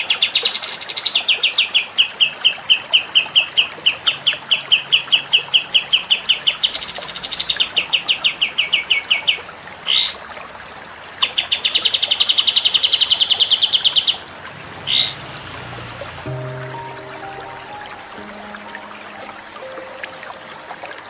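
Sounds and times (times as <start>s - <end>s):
songbird chirping: 11.3s - 21.0s.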